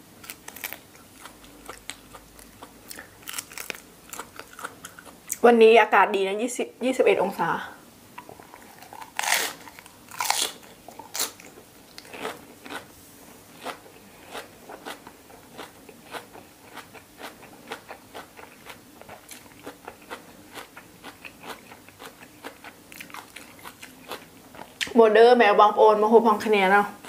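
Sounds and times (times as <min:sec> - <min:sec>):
crunching chewing: 0:00.2 - 0:05.4, 0:08.2 - 0:12.9, 0:13.5 - 0:24.9.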